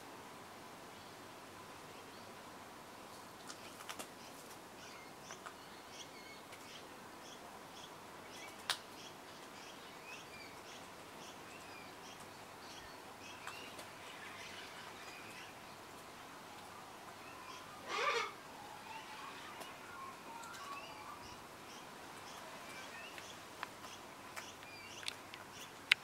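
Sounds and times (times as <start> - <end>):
bird chirping: 4.8 - 26.0
sharp clicks: 23.1 - 26.0.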